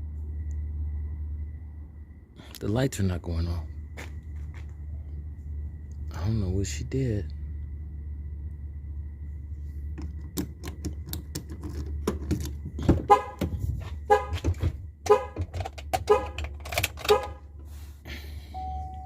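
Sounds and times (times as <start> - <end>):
car horn honking: 13.0 - 17.6.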